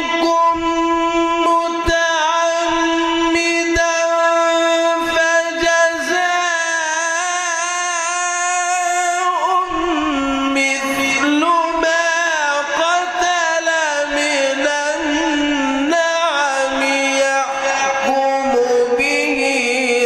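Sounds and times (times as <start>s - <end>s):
man chanting melodically: 0.0s - 20.0s.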